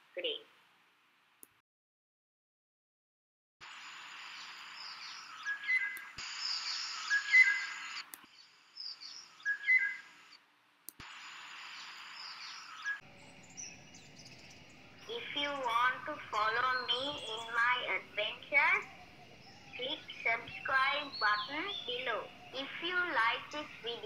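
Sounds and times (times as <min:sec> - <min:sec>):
steady hiss: 0:03.6 - 0:10.4, 0:11.0 - 0:16.7, 0:17.5 - 0:24.0
birds whistling and chirping: 0:04.4 - 0:08.0, 0:08.8 - 0:10.1, 0:11.8 - 0:24.0.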